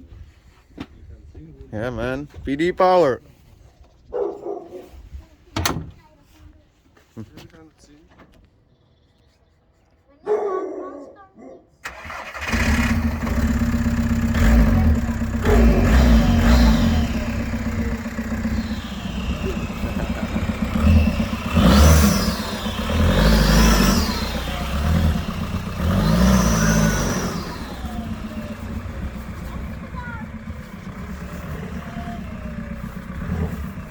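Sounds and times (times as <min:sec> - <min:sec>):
diesel engine revving: 0:11.8 - 0:33.9.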